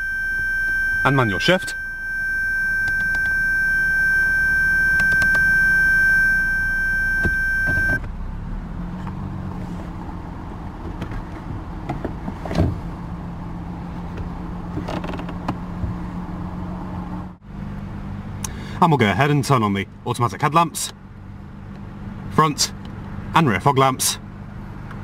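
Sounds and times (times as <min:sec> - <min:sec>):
high electronic tone: 0:00.0 - 0:08.0.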